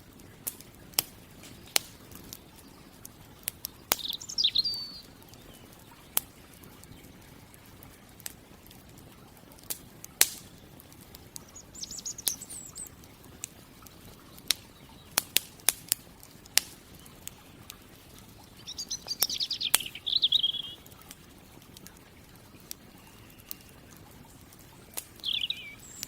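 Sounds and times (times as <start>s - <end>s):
campfire crackling and popping: 0.0s - 26.0s
songbird singing with trill: 3.6s - 7.6s, 11.4s - 13.1s, 13.9s - 15.4s, 18.3s - 20.9s, 22.8s - 26.0s.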